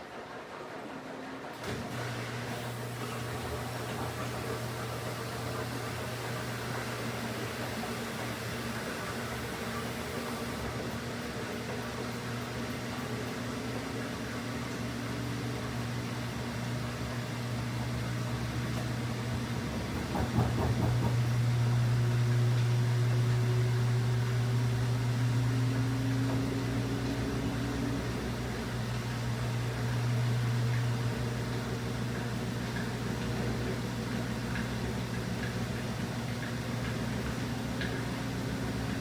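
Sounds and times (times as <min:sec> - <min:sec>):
washing machine motor hum: 0:00.0 - 0:39.0
washing machine rattling knock: 0:19.0 - 0:21.6.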